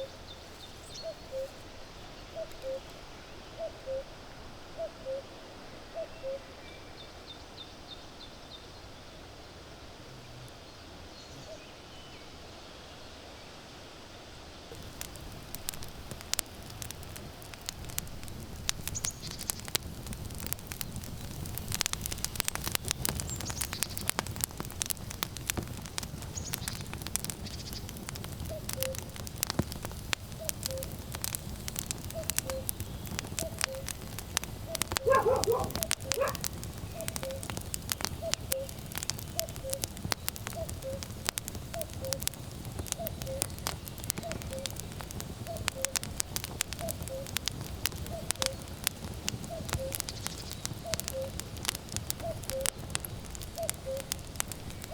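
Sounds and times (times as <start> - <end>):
firewood crackling and popping: 0.0 - 3.1, 14.7 - 54.9
cuckoo calling: 0.8 - 1.6, 2.3 - 3.0, 3.6 - 4.1, 4.8 - 5.3, 5.9 - 6.5, 26.2 - 29.2, 30.3 - 31.1, 31.9 - 34.0, 34.7 - 46.1, 46.7 - 47.4, 49.4 - 51.5, 52.1 - 52.9, 53.5 - 54.2
high bird chirps: 32.1 - 33.9
dog barking: 35.0 - 36.5.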